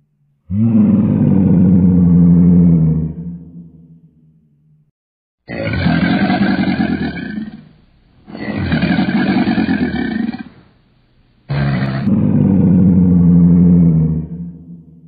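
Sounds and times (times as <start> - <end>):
deep animal roaring: 0.5 - 3.6, 5.5 - 7.7, 8.3 - 10.6, 11.5 - 14.8.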